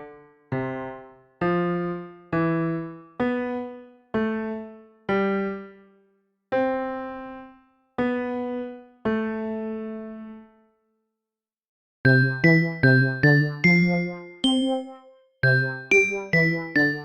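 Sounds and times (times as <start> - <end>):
slow electric piano: 0.0 - 5.8.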